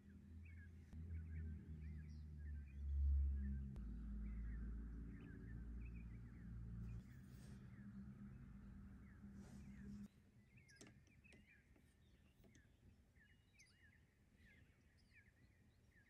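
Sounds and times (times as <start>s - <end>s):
low rumble: 0.0s - 10.1s
faint bird chirps: 0.0s - 16.0s.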